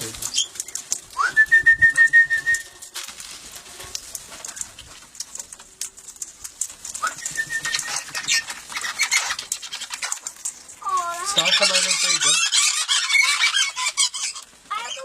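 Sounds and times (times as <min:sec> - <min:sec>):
parrot calling: 0:07.0 - 0:15.0.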